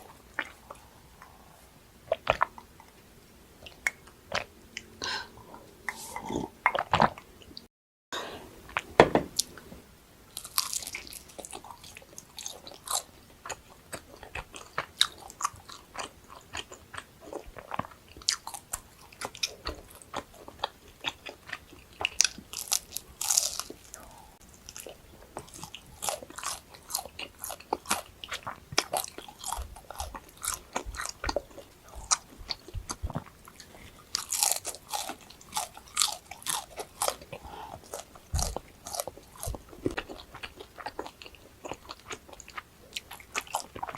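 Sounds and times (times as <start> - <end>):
chewing: 0.0 - 3.0, 3.6 - 7.7, 10.4 - 43.9
crunchy food bites: 10.4 - 17.0, 17.6 - 43.9.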